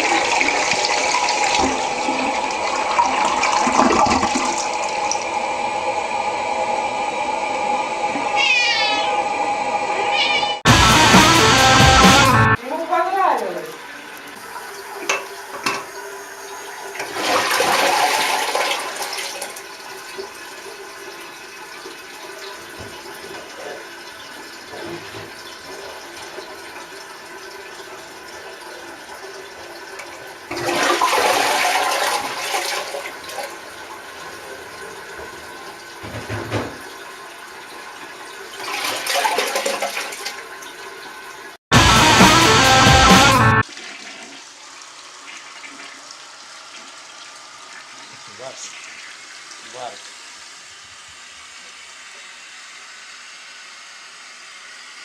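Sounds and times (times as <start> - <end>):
toilet flushing water rush: 0.0 - 55.0.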